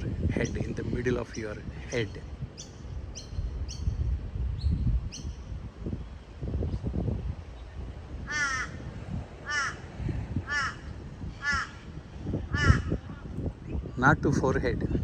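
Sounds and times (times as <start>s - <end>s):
bird calling: 0.4s - 4.0s, 8.3s - 13.9s.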